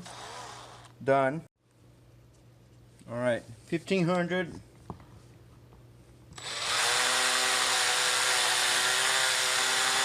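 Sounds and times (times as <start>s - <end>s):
electric drill whining: 0.0s - 1.0s, 6.4s - 10.0s.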